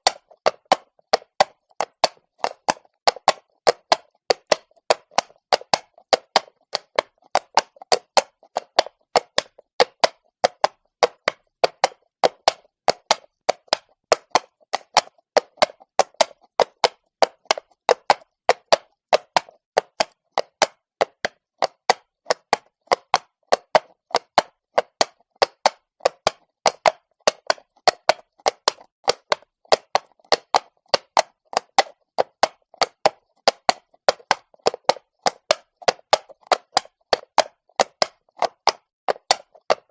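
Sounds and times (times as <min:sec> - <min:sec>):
horse hooves clattering on stone: 0:00.0 - 0:39.9.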